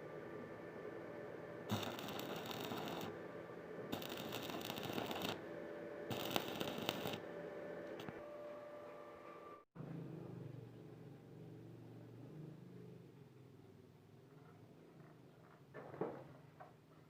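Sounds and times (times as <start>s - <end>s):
electric arc welding crackling: 1.7s - 3.1s, 3.9s - 5.4s, 6.1s - 7.2s.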